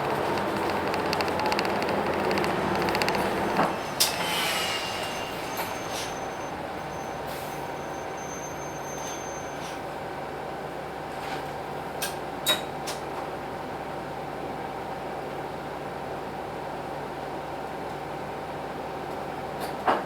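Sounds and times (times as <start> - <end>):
bus diesel engine running: 0.0 - 11.1
short clicks: 0.3 - 3.7.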